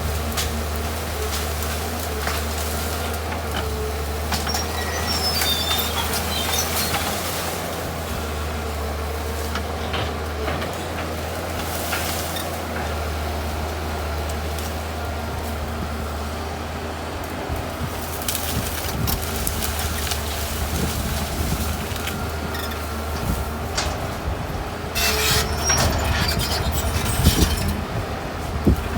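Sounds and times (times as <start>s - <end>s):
excavator diesel engine running: 0.0s - 28.9s
short high squeaks: 4.3s - 7.6s, 22.4s - 23.4s, 25.0s - 27.8s.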